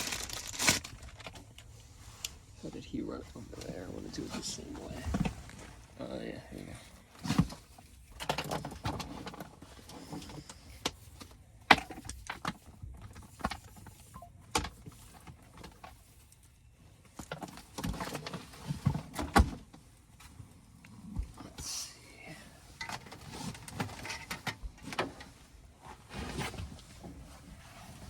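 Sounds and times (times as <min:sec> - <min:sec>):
rustling: 0:00.0 - 0:08.2, 0:20.0 - 0:28.0.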